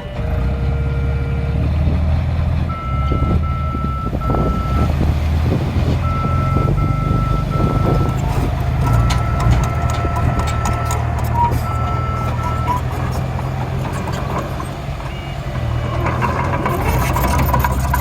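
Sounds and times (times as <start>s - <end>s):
truck backup alarm beeping: 0.0s - 1.6s, 2.6s - 18.0s
truck engine drone: 0.0s - 18.0s
soil and stone rattling: 4.8s - 18.0s.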